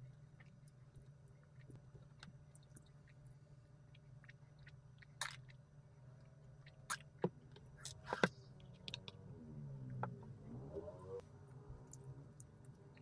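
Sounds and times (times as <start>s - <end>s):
person chewing: 3.9s - 5.6s.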